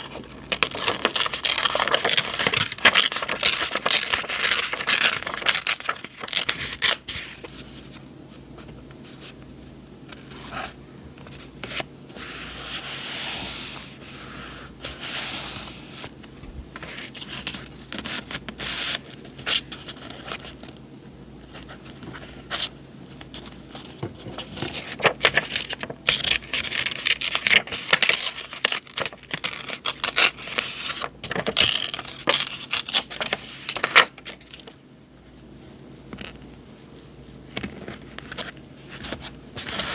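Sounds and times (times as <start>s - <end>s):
paper rustling: 0.0s - 9.4s, 21.5s - 34.8s.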